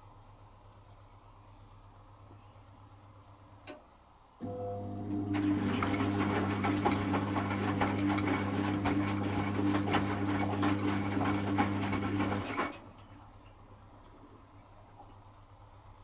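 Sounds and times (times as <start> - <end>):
drain pump humming: 4.4 - 15.3.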